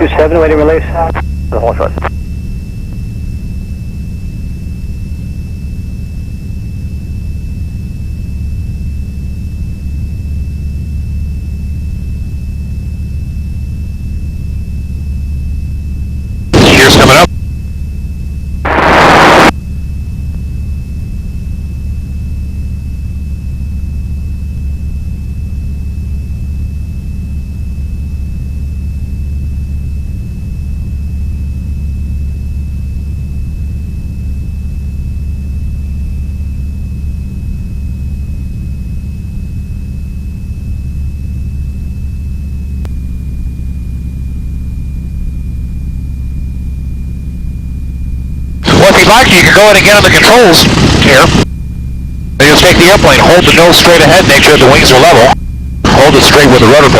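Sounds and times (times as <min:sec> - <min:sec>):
airplane radial engine droning: 0:00.0 - 0:56.9
thin steady whine: 0:00.0 - 0:56.9
loud burst: 0:16.5 - 0:17.3, 0:18.7 - 0:19.5, 0:48.6 - 0:51.5, 0:52.4 - 0:56.9.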